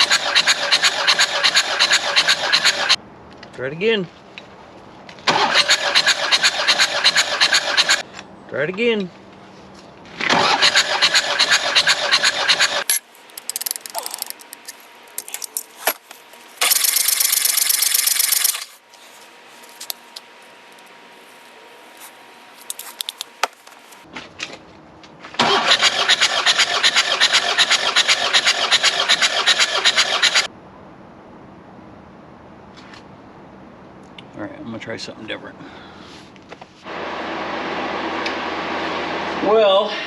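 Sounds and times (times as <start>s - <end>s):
diesel engine cranking on starter: 0.0s - 3.0s, 5.2s - 8.0s, 10.2s - 12.9s, 16.6s - 18.7s, 25.4s - 30.5s.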